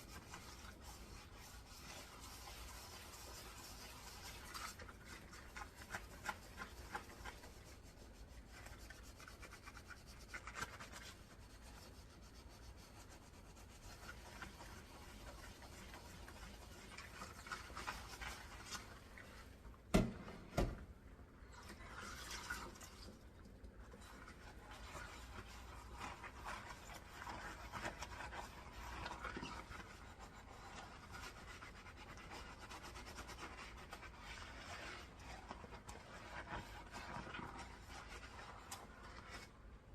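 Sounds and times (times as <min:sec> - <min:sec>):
sponge scrubbing dishes: 0:00.0 - 0:20.7, 0:21.4 - 0:39.9.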